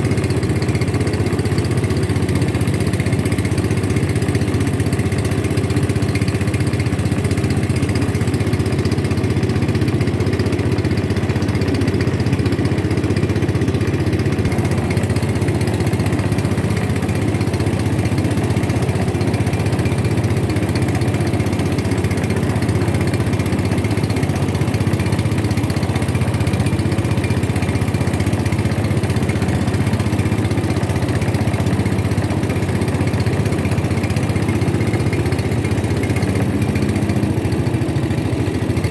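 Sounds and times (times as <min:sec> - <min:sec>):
boat engine droning: 0:00.0 - 0:38.9.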